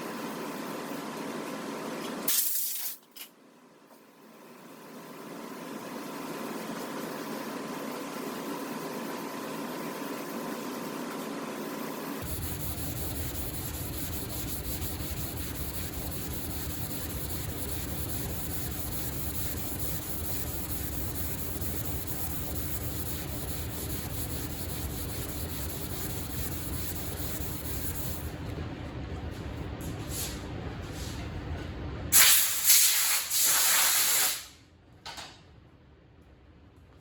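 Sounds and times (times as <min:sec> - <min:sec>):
sandpaper scrubbing car hood: 0:12.2 - 0:28.2.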